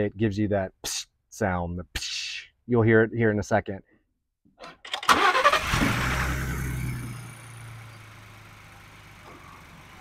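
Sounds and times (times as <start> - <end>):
turbocharged engine revving: 5.1 - 8.6.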